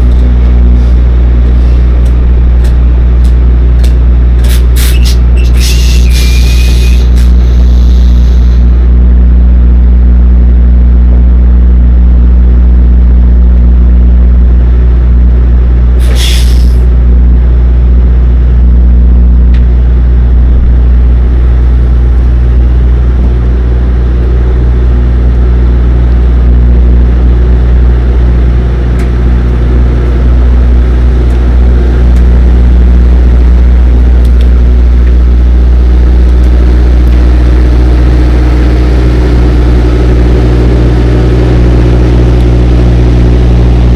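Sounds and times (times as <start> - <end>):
truck diesel engine running: 0.0 - 43.9
short air hiss: 4.4 - 8.6, 16.0 - 16.8.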